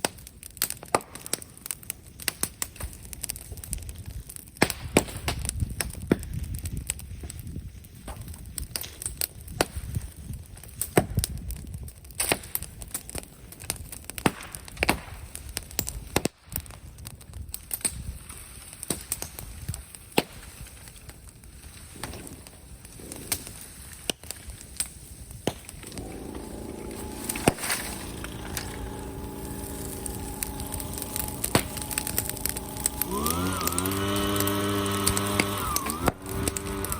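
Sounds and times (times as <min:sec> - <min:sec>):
bonfire crackling and popping: 0:00.0 - 0:36.9
low fire rumble: 0:20.6 - 0:36.9
steady humming tone: 0:25.8 - 0:36.9.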